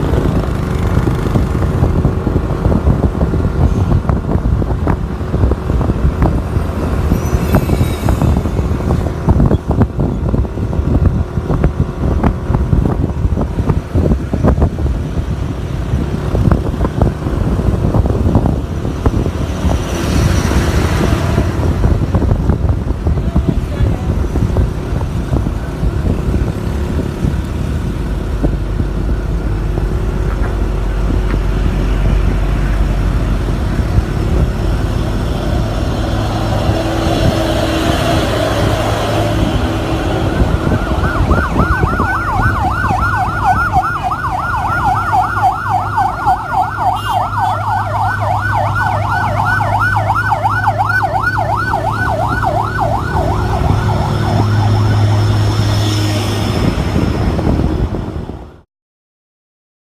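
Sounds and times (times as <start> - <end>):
vehicle engine hum: 0.0 - 58.6
road noise: 0.0 - 58.7
siren yelp: 37.3 - 56.3.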